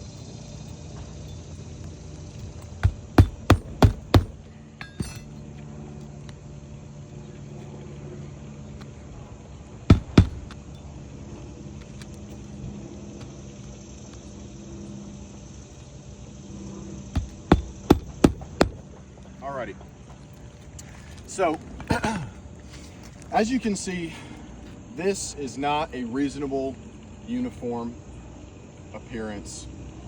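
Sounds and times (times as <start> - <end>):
low steady hum: 0.0 - 13.0, 17.0 - 19.0
nails driven into roof shingle: 2.5 - 5.3, 9.9 - 10.6, 17.2 - 18.8.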